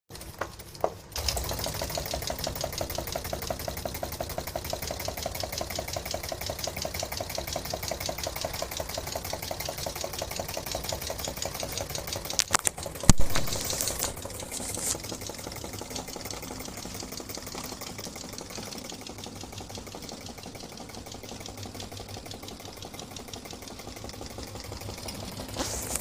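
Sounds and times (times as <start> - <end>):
model engine clattering: 0.1 - 26.0
sharp click: 12.3 - 15.1.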